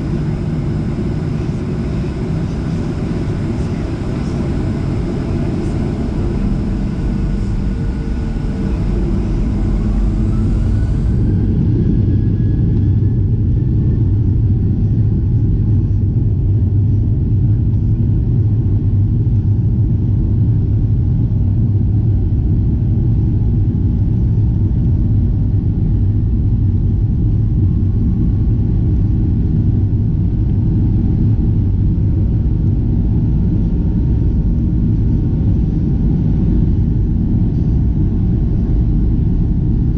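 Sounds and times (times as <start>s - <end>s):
jet cabin low rumble: 0.0s - 39.9s
thin jet engine whine: 0.0s - 39.9s.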